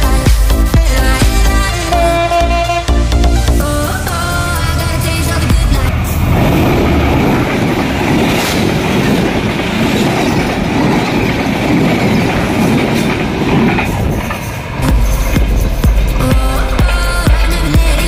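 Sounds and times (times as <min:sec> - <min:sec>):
train wheels clattering on track: 0:03.9 - 0:18.0.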